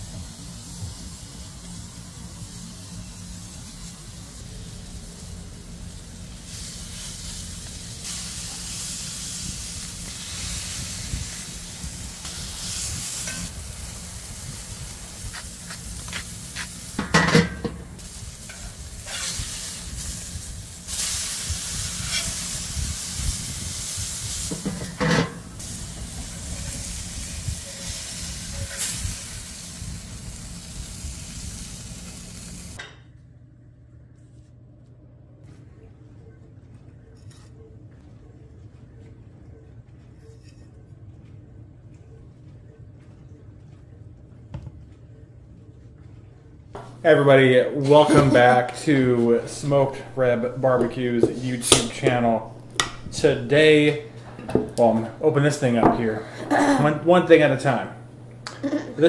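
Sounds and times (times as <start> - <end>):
food sizzling in a pan: 0.0 - 32.8
metal grill lid clanking: 17.0 - 17.9, 24.5 - 25.4.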